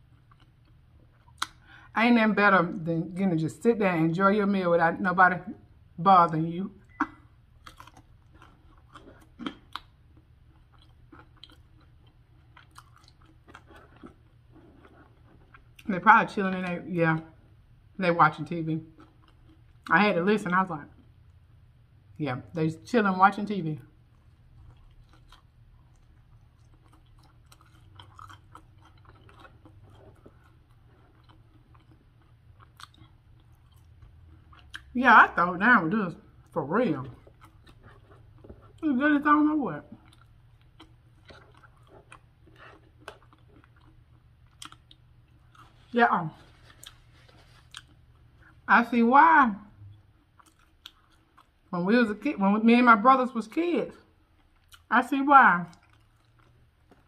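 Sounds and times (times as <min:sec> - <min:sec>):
chewing with mouth closed: 0:00.0 - 0:01.8, 0:06.8 - 0:15.9, 0:18.9 - 0:19.9, 0:24.0 - 0:35.0, 0:36.2 - 0:38.8, 0:39.8 - 0:48.7, 0:49.9 - 0:51.7, 0:54.2 - 0:54.9, 0:55.7 - 0:57.0.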